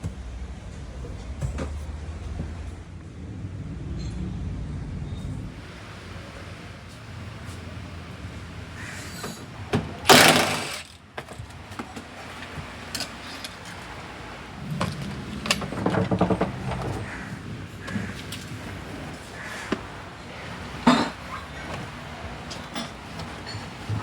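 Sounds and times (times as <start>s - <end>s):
hand tools clicking and clattering: 9.1s - 14.0s, 20.7s - 24.0s
ratchet clicking: 10.1s - 11.0s.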